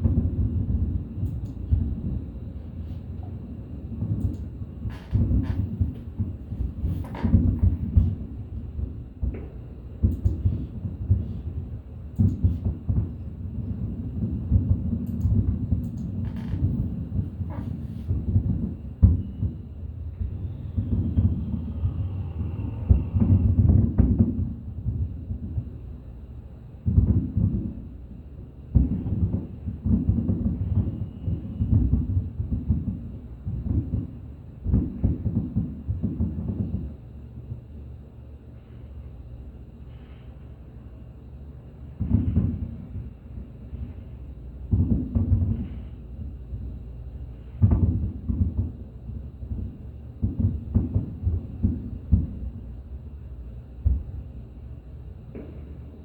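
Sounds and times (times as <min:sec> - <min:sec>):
fireworks booming: 0:00.0 - 0:26.0, 0:26.8 - 0:28.1, 0:28.7 - 0:37.6, 0:41.9 - 0:56.0
sharp fireworks bangs: 0:05.1 - 0:11.4, 0:12.4 - 0:25.6, 0:26.8 - 0:27.9, 0:28.7 - 0:37.0, 0:42.0 - 0:44.1, 0:44.7 - 0:46.7, 0:47.4 - 0:52.6
low rumble: 0:16.4 - 0:25.7.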